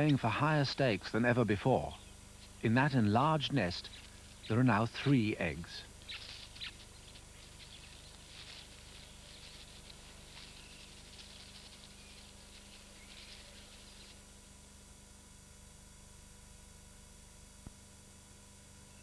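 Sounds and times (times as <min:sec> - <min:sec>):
steady low hum: 0:00.0 - 0:19.0
small birds chirping: 0:01.7 - 0:14.2.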